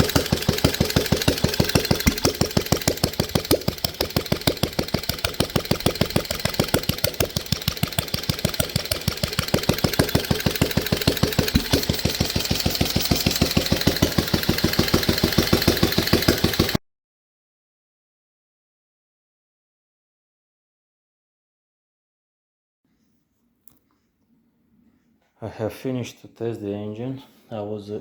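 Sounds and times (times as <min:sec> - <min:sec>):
single-cylinder engine fast idle: 0:00.0 - 0:16.8.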